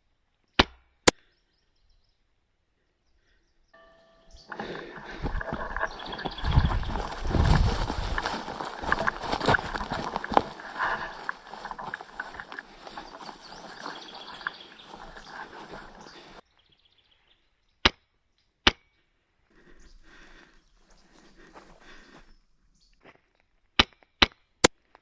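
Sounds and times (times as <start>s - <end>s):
loud rustling and clattering: 4.6s - 16.4s.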